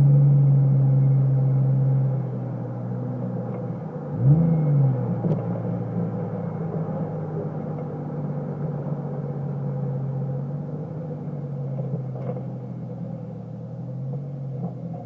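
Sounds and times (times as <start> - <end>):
exhaust drone: 0.0 - 15.0
engine rev blip: 4.2 - 5.5.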